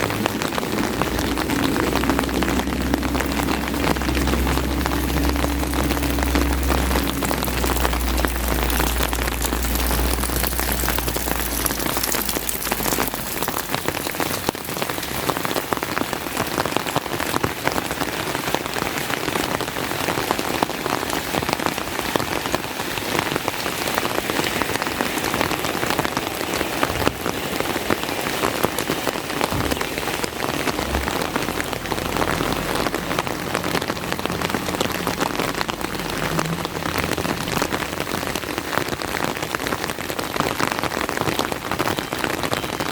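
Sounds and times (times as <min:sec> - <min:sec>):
low rumble: 0:00.0 - 0:15.8, 0:29.6 - 0:38.7
heavy rain: 0:00.0 - 0:42.9.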